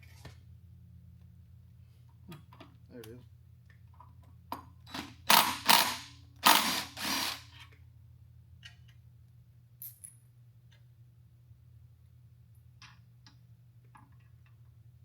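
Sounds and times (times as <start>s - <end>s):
ratcheting tool bursts: 5.3s - 7.5s.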